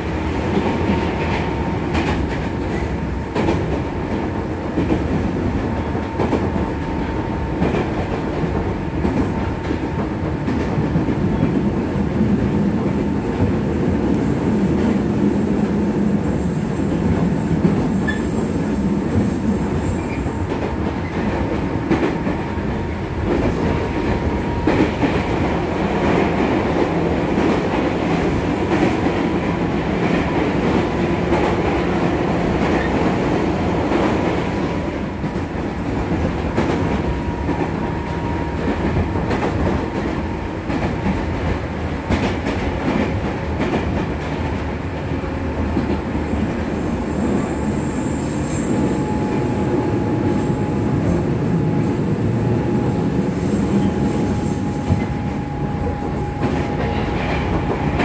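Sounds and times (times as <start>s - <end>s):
train wheels rumbling: 0.0s - 58.0s.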